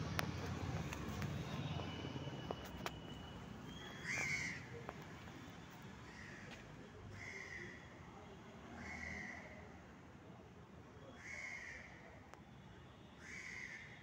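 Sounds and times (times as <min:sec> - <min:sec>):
low outdoor rumble: 0:00.0 - 0:02.7.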